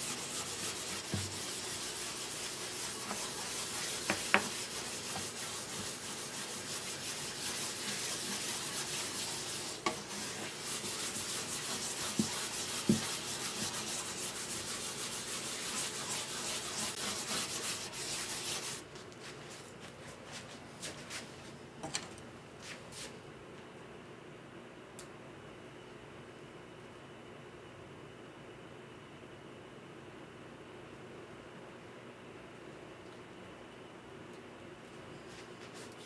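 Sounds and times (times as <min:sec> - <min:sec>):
sandpaper rubbing on wood: 0:00.0 - 0:18.8.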